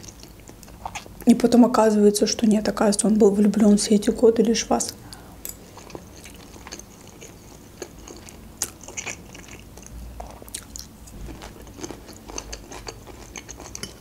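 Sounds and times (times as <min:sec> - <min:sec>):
person chewing food: 0:00.0 - 0:01.2, 0:05.1 - 0:14.0.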